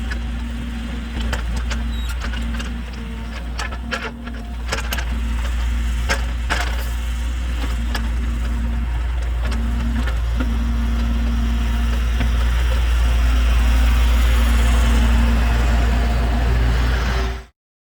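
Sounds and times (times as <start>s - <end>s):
excavator diesel engine running: 0.0s - 17.5s.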